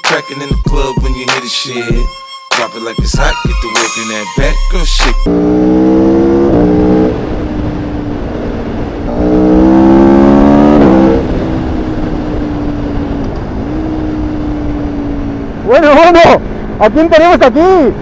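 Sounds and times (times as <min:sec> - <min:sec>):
motorcycle engine accelerating: 0:05.0 - 0:17.0.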